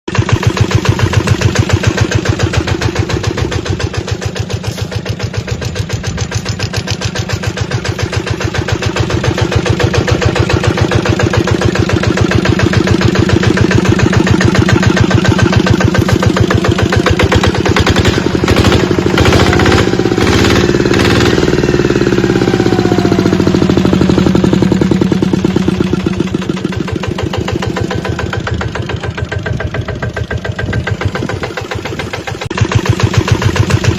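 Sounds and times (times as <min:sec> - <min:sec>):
diesel engine running: 0:00.1 - 0:33.9
engine knocking: 0:00.1 - 0:33.9.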